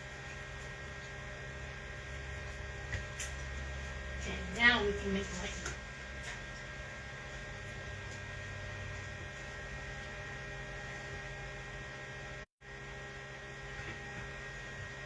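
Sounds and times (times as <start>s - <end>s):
electrical hum with hiss: 0.0s - 15.0s.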